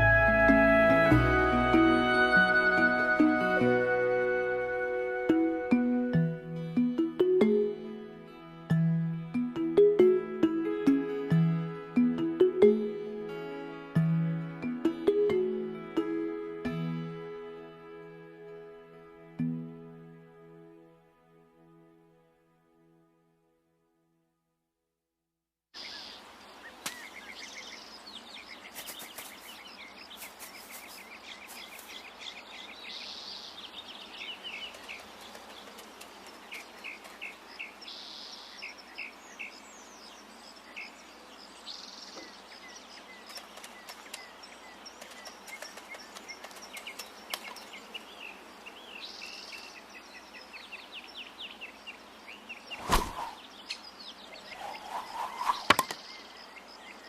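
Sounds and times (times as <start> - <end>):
background hiss: 25.8 - 57.0
birds chirping and trilling: 25.8 - 57.0.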